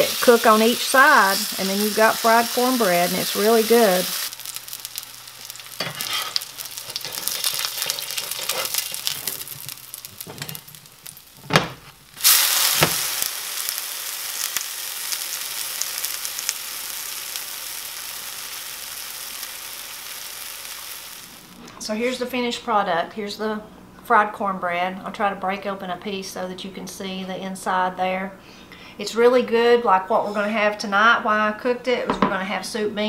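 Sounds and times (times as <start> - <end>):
batter sizzling in a skillet: 0.0 - 21.6.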